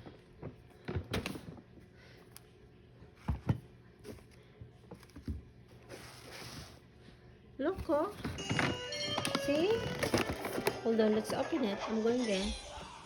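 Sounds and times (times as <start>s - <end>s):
package rustling: 8.3s - 11.4s.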